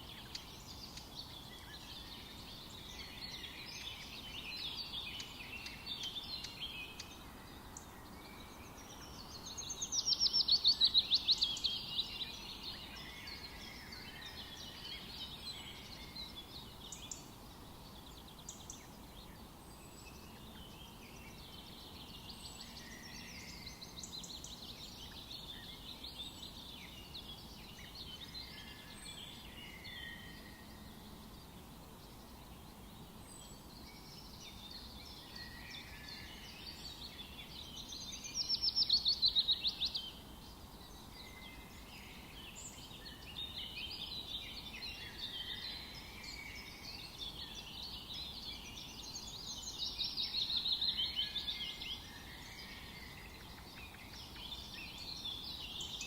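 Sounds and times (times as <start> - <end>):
low background hiss: 0.0 - 56.0
songbirds singing: 0.0 - 56.0.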